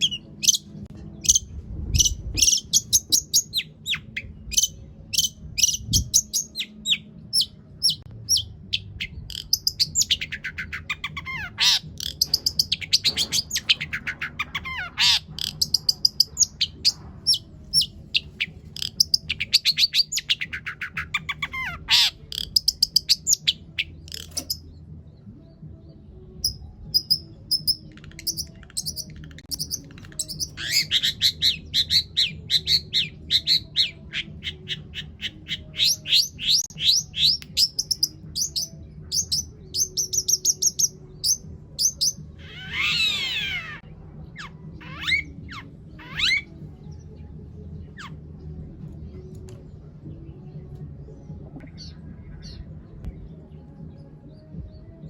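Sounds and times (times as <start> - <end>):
bird singing sharp chirps: 0.0 - 24.7.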